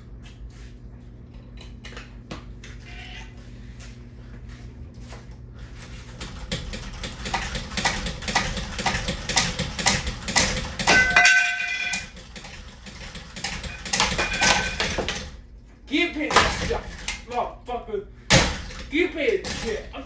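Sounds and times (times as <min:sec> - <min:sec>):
hard parts clicking and rattling: 0:05.9 - 0:17.5, 0:18.3 - 0:20.0.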